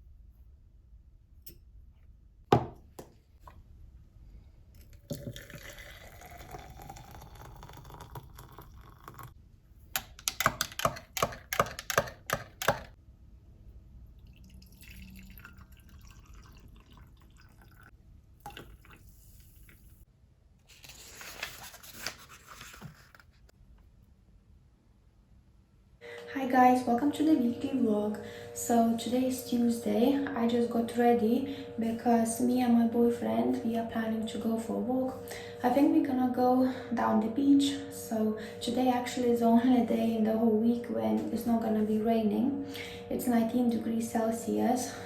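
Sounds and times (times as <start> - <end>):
liquid pouring into container: 4.8 - 9.4, 14.2 - 20.0.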